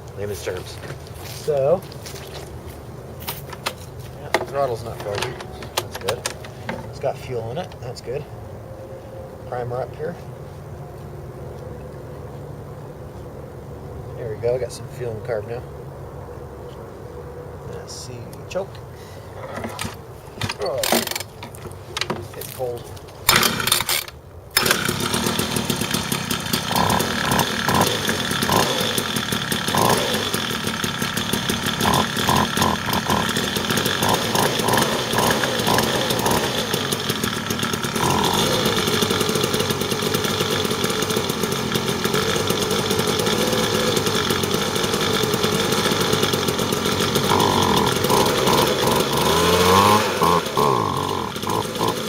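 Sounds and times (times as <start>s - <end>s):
leaf blower running: 3.2s - 7.6s, 20.5s - 21.3s, 22.4s - 52.0s
pull-start cord: 3.3s - 7.0s, 19.6s - 22.6s, 23.3s - 52.0s.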